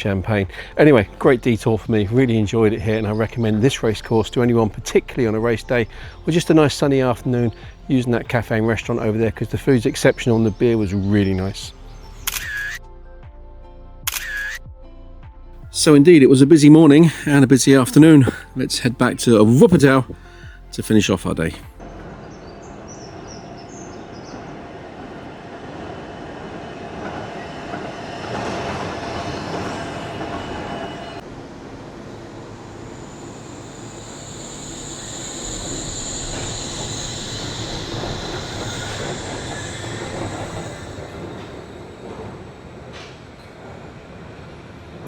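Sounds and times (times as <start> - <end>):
train running on rails: 0.0 - 12.7, 15.6 - 45.0
high-pitched wheel squeal: 27.4 - 43.5
held tone: 29.4 - 43.4.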